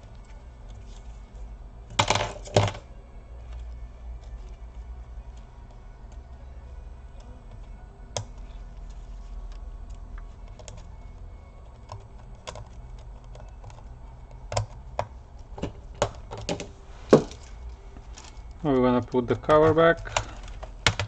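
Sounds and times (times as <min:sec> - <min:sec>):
low steady hum: 0:00.0 - 0:21.0
plastic laptop parts clicking: 0:07.2 - 0:17.4, 0:18.2 - 0:21.0.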